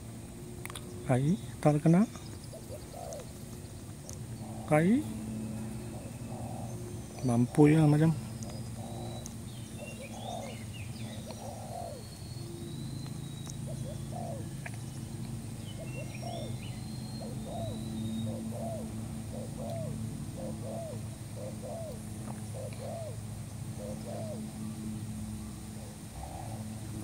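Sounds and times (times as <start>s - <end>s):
doves cooing: 0.0s - 27.0s
small birds chirping: 0.0s - 27.0s
steady low hum: 0.0s - 27.0s.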